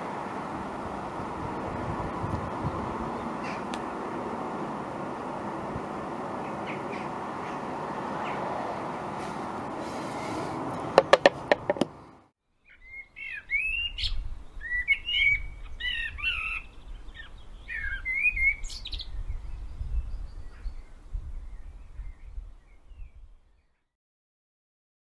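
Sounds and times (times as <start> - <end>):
steady outdoor rush: 0.0 - 12.3
songbird singing whistled phrases: 12.6 - 20.9.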